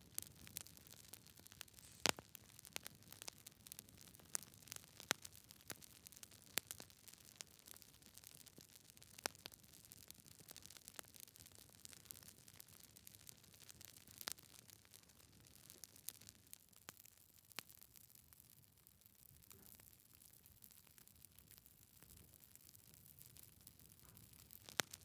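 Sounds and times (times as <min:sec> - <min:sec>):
faint steady hiss: 0:00.0 - 0:08.6
fire crackling and popping: 0:00.0 - 0:19.3, 0:19.9 - 0:25.0.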